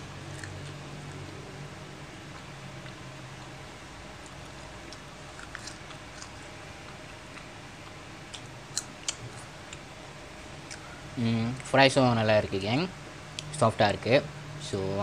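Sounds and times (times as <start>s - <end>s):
person chewing fries: 0.2s - 1.4s, 2.2s - 9.9s.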